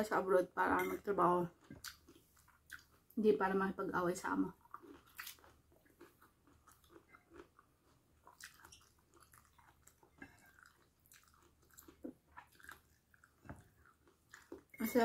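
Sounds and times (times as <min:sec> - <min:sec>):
person chewing food: 0:01.5 - 0:03.2, 0:04.6 - 0:14.8.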